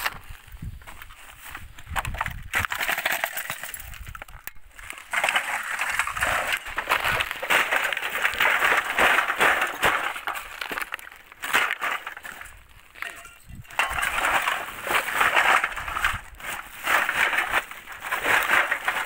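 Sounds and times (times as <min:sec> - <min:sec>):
crackling of dry debris: 0:00.0 - 0:19.0
scrap metal being pulled out: 0:05.0 - 0:10.8, 0:11.4 - 0:19.0.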